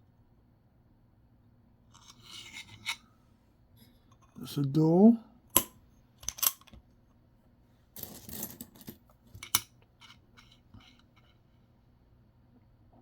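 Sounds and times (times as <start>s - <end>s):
coins scraping on a table: 1.9s - 3.0s, 8.0s - 11.4s
coins clicking: 8.0s - 9.6s.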